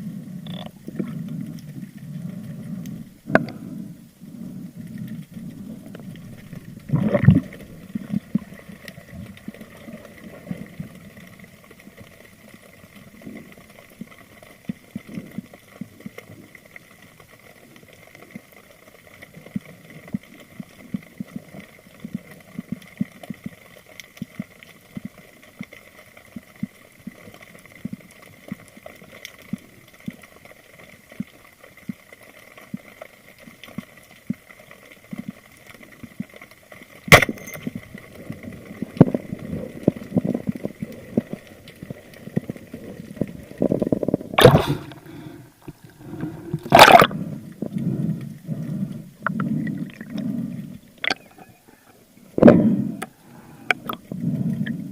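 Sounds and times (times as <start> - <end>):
faint underwater clicking: 0.0 - 54.9
sharp crack: 37.1 - 37.5, 44.4 - 45.2
water sloshing: 37.1 - 51.4.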